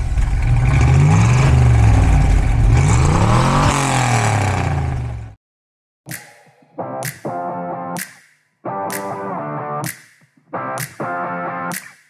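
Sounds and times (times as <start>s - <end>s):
car engine revving: 0.0s - 5.4s.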